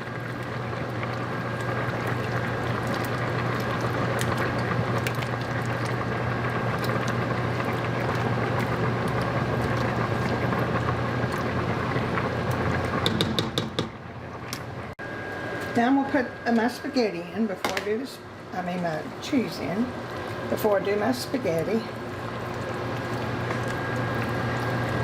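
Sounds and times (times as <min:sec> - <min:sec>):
pot simmering hiss: 0:00.0 - 0:13.4, 0:18.6 - 0:25.0.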